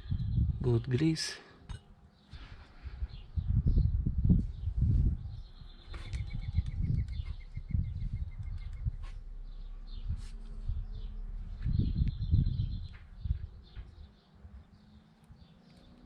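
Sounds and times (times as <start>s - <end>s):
faint bird chirps: 0.0s - 16.0s
muffled bumps and rustling: 2.4s - 14.2s.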